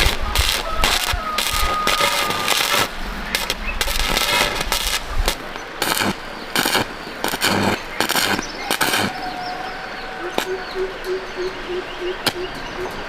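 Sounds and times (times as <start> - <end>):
welding arc crackling: 0.0 - 9.4.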